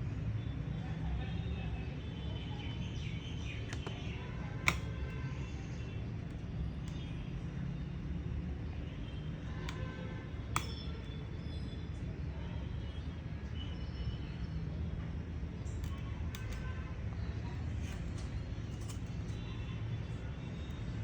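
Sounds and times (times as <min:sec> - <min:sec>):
clicks of laptop parts: 0:03.5 - 0:07.1, 0:09.6 - 0:11.2, 0:15.6 - 0:16.8, 0:17.5 - 0:21.0.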